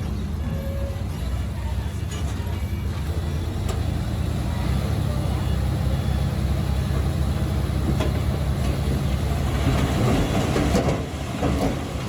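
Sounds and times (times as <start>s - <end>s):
bulldozer diesel engine running: 0.0s - 12.0s
steel tracks clanking: 6.9s - 12.0s.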